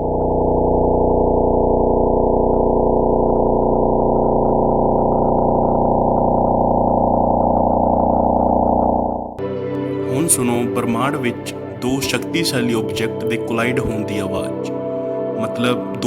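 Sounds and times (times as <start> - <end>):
rapid electronic buzz: 0.0 - 9.4.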